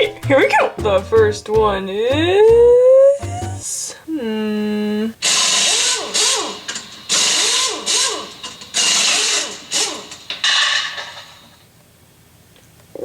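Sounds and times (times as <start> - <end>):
air wrench hissing bursts: 5.2 - 11.6.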